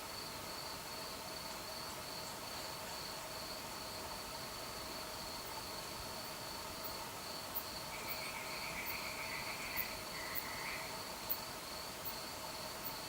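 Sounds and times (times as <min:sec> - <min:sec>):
low steady insect trills: 0:00.0 - 0:13.0
crickets chirring: 0:00.2 - 0:13.0
loud trilling insect call: 0:07.6 - 0:11.5.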